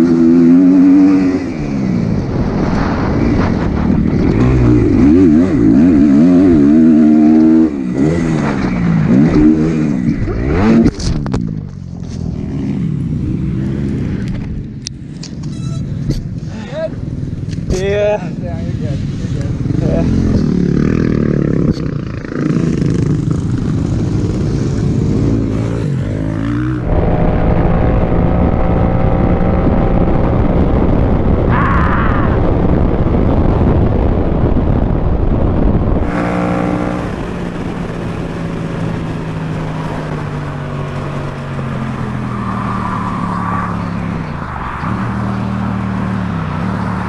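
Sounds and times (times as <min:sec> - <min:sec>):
steady rushing noise: 0:00.9 - 0:15.2, 0:16.2 - 0:47.0
motorcycle engine running: 0:35.0 - 0:42.4.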